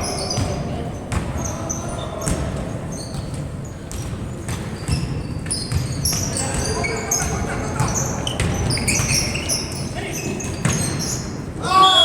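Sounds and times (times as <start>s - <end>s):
sneaker squeaks: 0.0s - 12.0s
basketball bouncing: 0.2s - 1.5s, 2.2s - 9.8s, 10.4s - 11.1s.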